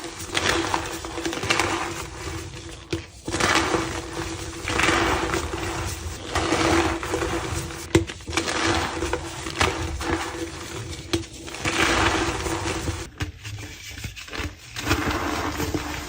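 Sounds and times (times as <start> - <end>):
chalk crumbling by hand: 0.0 - 13.1.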